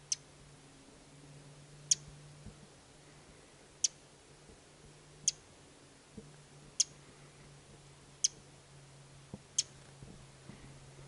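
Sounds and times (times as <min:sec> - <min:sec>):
small bird chip calls: 0:00.0 - 0:00.3, 0:01.9 - 0:02.1, 0:03.8 - 0:04.0, 0:05.2 - 0:05.4, 0:06.8 - 0:07.2, 0:08.2 - 0:08.4, 0:09.5 - 0:09.8.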